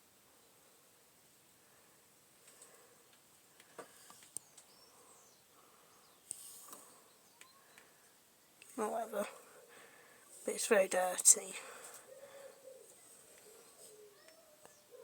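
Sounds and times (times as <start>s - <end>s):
faint small clicks: 2.4s - 4.8s.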